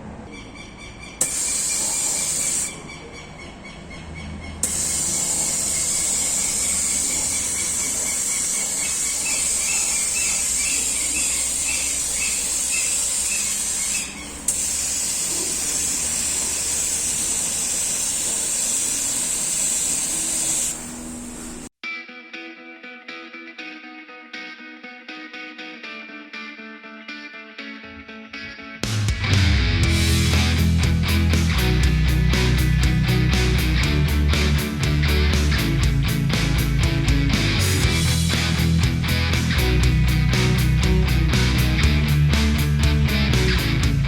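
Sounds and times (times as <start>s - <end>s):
vacuum pump hissing: 1.2s - 2.8s, 4.6s - 21.7s.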